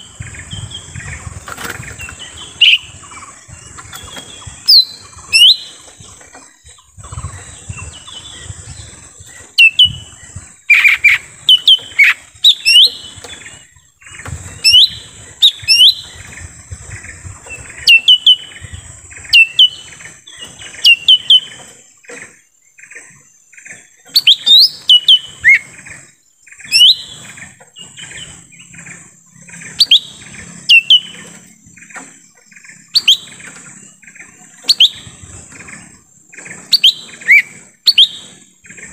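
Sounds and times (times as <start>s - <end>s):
bird chirping sharply: 0.0s - 6.0s, 9.3s - 13.5s, 24.0s - 25.6s, 29.4s - 31.4s, 32.7s - 35.3s.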